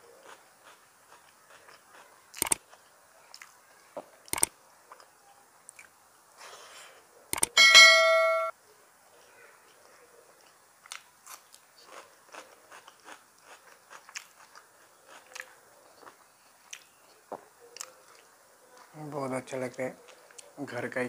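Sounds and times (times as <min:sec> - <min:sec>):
person chewing with wet mouth clicks: 0:03.3 - 0:03.6, 0:10.4 - 0:17.0.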